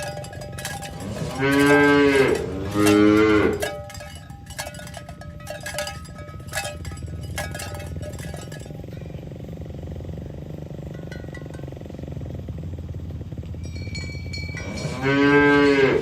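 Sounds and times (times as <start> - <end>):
cow mooing: 0.0 - 4.8, 14.6 - 16.0
short ringing clinks: 0.0 - 12.4, 13.5 - 15.8.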